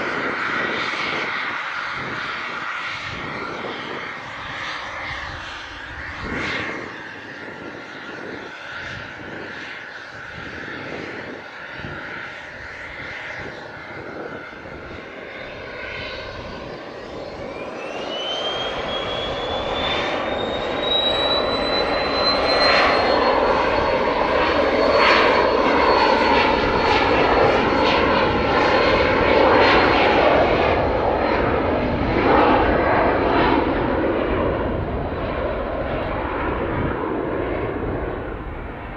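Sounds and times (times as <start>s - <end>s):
jet engine rushing roar: 0.0s - 38.9s
jet engine whine: 0.0s - 38.9s.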